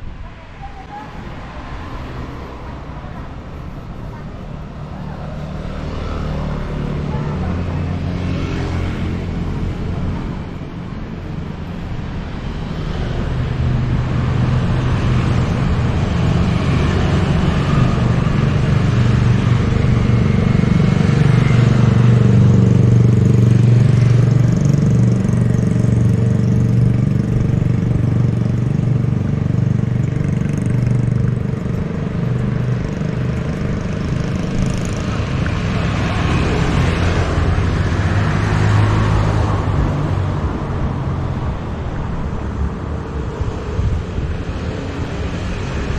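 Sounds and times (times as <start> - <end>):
car engines running: 0.0 - 45.9
motorbike engine running: 13.6 - 38.2.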